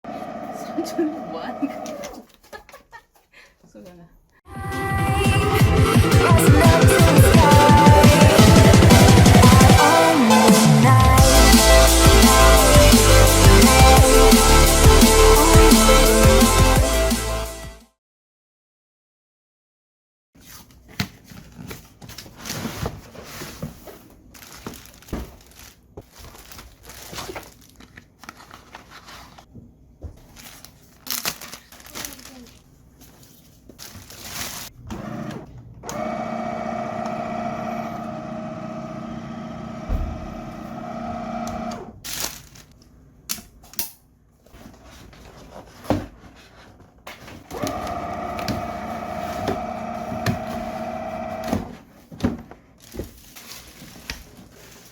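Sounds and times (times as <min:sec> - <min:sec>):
mop cleaner motor humming: 0:00.1 - 0:02.2, 0:05.7 - 0:09.9, 0:34.9 - 0:41.9, 0:47.5 - 0:51.6.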